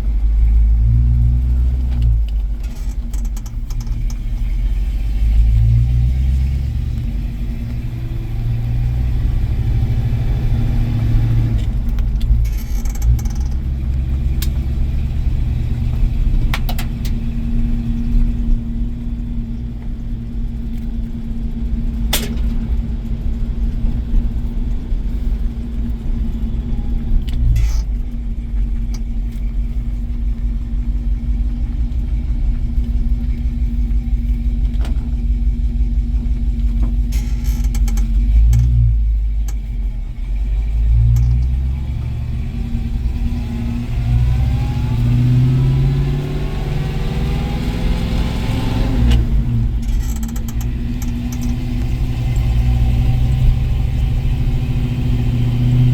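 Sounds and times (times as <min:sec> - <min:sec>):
engine running with low rumble: 0:00.0 - 0:55.9.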